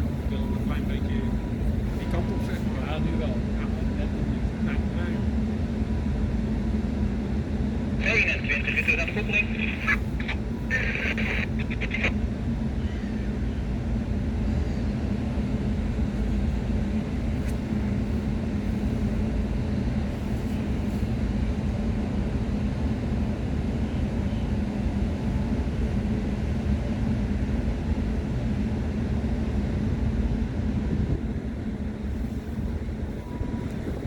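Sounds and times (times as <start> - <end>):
engine rumble: 0.0 - 26.6.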